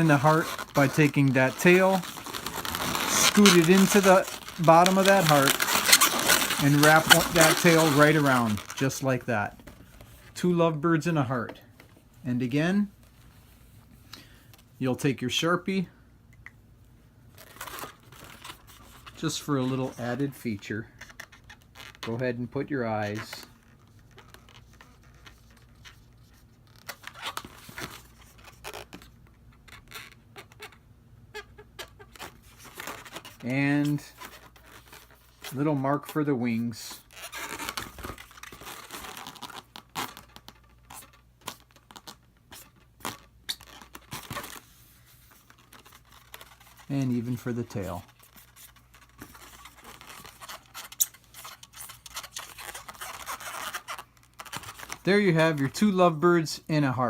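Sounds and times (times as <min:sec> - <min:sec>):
marker squeaking on balloons: 0:00.0 - 0:08.9, 0:20.9 - 0:22.1, 0:23.6 - 0:35.7, 0:37.0 - 0:55.1
balloons rubbing: 0:00.0 - 0:10.5, 0:17.4 - 0:22.2, 0:23.0 - 0:56.0
marker scratching on balloon: 0:47.8 - 0:54.9.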